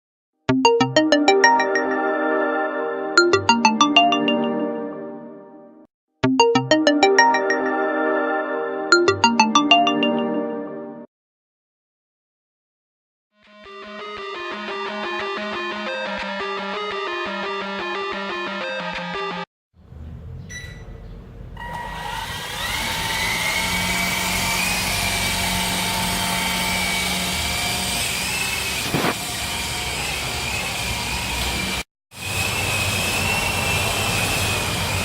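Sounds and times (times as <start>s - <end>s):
toy helicopter rotor whine: 21.7s - 35.0s.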